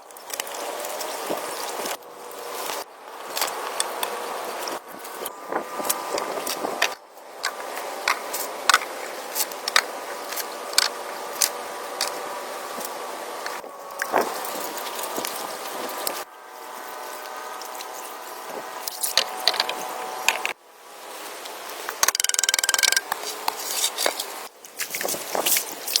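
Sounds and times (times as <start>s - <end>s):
sharp knocks and clicks: 22.0s - 23.6s.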